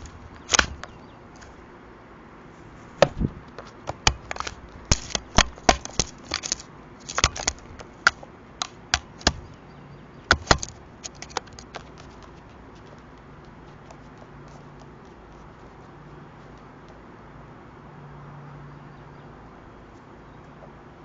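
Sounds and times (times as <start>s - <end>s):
crow pecking on camera: 0.0s - 1.6s, 3.0s - 9.6s, 10.3s - 17.1s.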